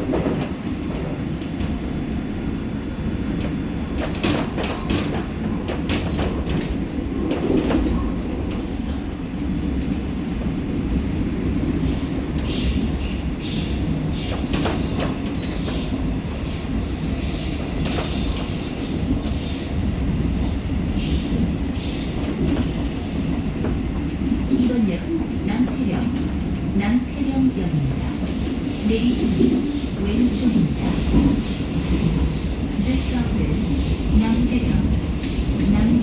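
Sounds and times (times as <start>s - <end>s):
train wheels rumbling: 0.0s - 36.0s.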